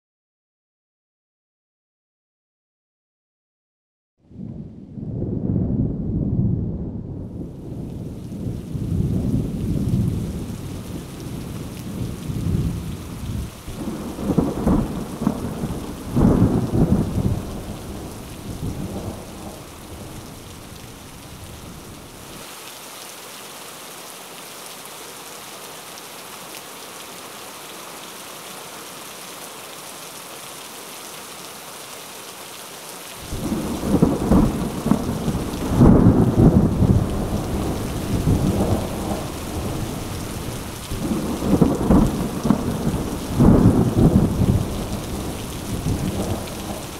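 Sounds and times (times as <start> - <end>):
rolling thunder: 4.4 - 22.2, 33.2 - 46.9
steady rain: 6.7 - 46.9.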